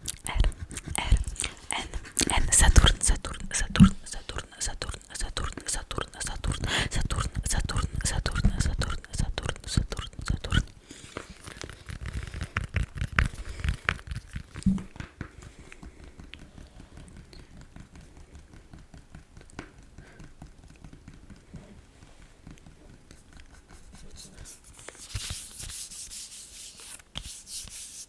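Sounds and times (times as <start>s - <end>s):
fingernail tapping and scratching: 11.5s - 24.6s.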